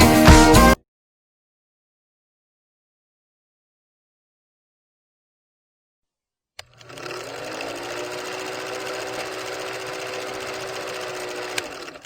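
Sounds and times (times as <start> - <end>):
small motor buzzing: 6.6 - 12.0.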